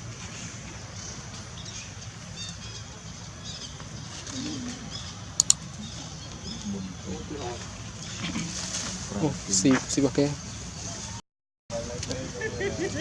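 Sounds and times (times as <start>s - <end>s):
sharp clicks: 5.4s - 5.6s.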